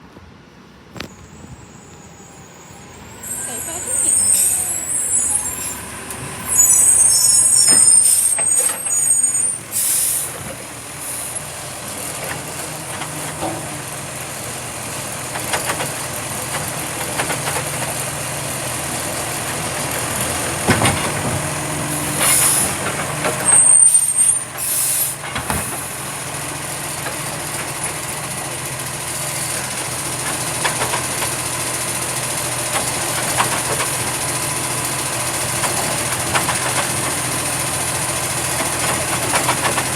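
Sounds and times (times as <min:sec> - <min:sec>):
recycling truck running: 0:00.0 - 0:39.9
air brake hisses: 0:01.0 - 0:10.4, 0:11.0 - 0:11.5, 0:21.9 - 0:22.8, 0:23.6 - 0:25.9
high squeals: 0:01.0 - 0:10.4, 0:23.4 - 0:25.0.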